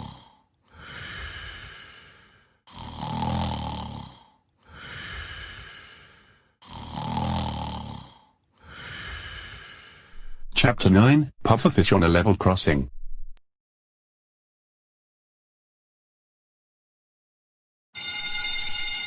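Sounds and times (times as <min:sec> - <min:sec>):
loud rasping snores: 0:00.0 - 0:10.1
soft airy breath: 0:00.2 - 0:02.6, 0:04.1 - 0:06.6, 0:08.1 - 0:10.5.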